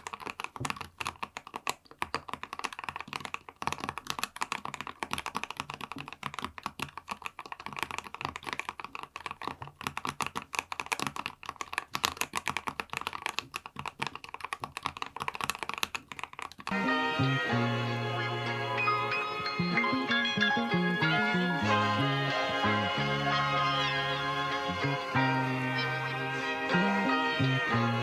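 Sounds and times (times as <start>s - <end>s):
fast keyboard typing: 0.0s - 28.0s
music: 16.7s - 28.0s.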